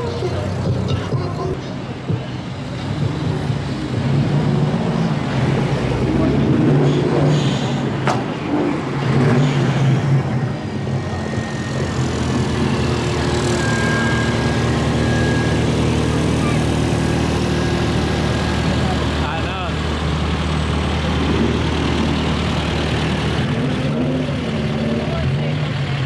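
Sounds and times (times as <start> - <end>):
car engine running: 0.0 - 6.7, 7.9 - 26.0
people talking: 15.8 - 22.2, 23.5 - 26.0.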